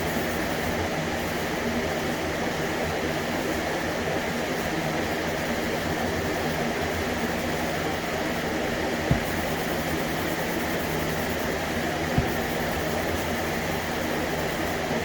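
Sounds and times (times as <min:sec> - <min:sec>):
short low thump: 0:09.1 - 0:09.6, 0:12.2 - 0:12.6
mechanical hum and hiss: 0:09.1 - 0:11.4.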